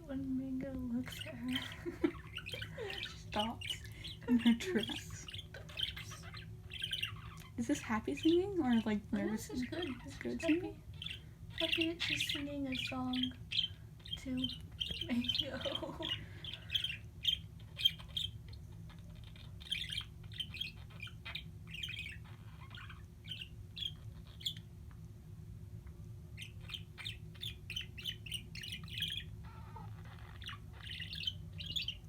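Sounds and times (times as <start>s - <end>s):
steady low hum: 0.0s - 32.0s
pet bird chirping and squawking: 1.0s - 24.8s, 26.3s - 32.0s.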